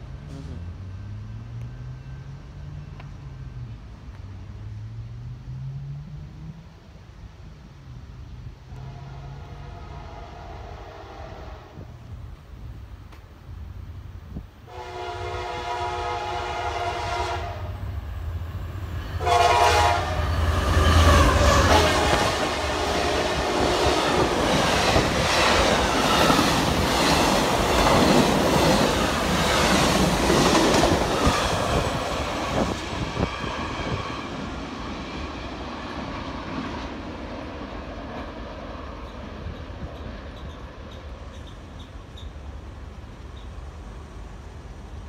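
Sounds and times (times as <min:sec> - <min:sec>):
train air horn blasts: 0:08.7 - 0:12.0, 0:14.7 - 0:17.9, 0:19.1 - 0:24.0.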